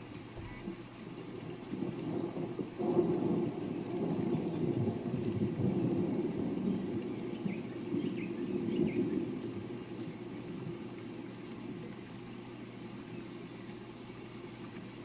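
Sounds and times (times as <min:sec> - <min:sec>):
rain falling: 0:00.0 - 0:15.0
distant thunder rumbling: 0:01.5 - 0:11.2.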